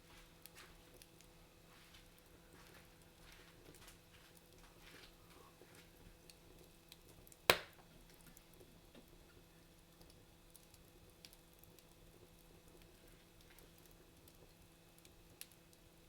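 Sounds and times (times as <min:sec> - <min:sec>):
wood fire crackling: 0:00.0 - 0:16.0
loud sharp fire pop: 0:07.5 - 0:07.8.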